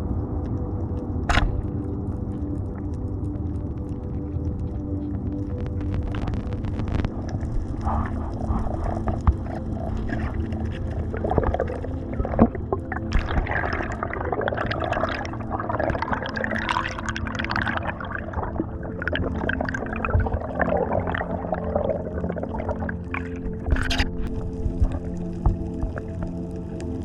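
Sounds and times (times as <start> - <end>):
water gurgling and sloshing: 0.0 - 27.0
small clicks and pops: 1.3 - 18.0, 22.8 - 27.0.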